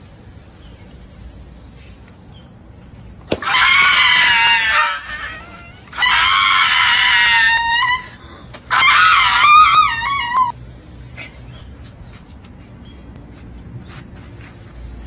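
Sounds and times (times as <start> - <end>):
high-pitched screams: 3.4 - 10.6.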